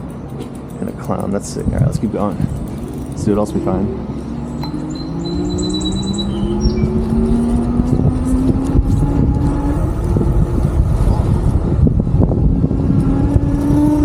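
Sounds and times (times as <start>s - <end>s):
wind buffeting microphone: 1.0s - 14.0s
electric bike motor whining: 2.6s - 10.3s.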